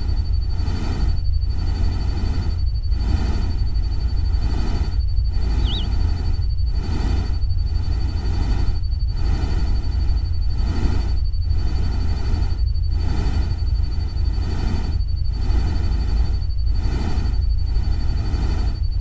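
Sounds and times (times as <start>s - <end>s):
faint high whine: 3.4s - 6.4s.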